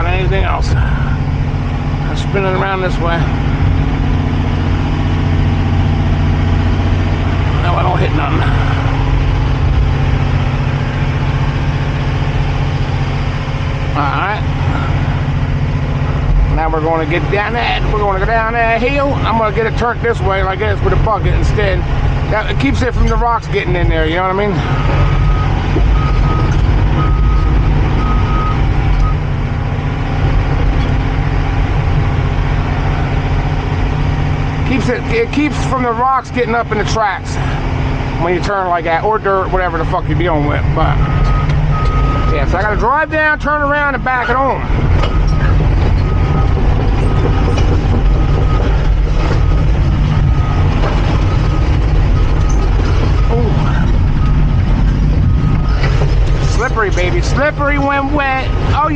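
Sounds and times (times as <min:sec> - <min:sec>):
excavator diesel engine running: 0:00.0 - 0:58.9
track links clanking: 0:00.0 - 0:58.9
travel alarm beeping: 0:24.6 - 0:29.2, 0:41.0 - 0:42.8, 0:45.0 - 0:54.5, 0:55.2 - 0:56.0.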